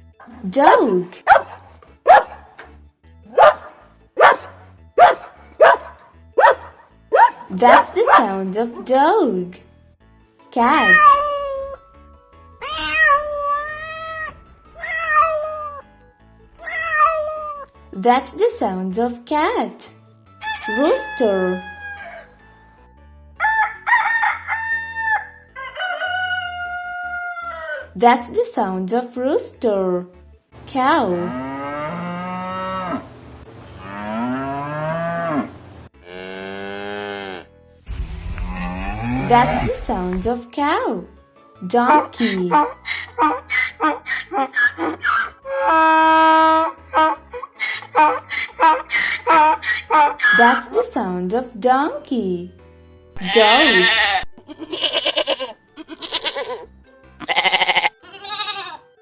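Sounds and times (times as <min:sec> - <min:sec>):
goat bleating: 0:10.7 - 0:11.3, 0:53.2 - 0:58.8
cow mooing: 0:31.1 - 0:33.1, 0:33.8 - 0:37.5, 0:38.4 - 0:39.8.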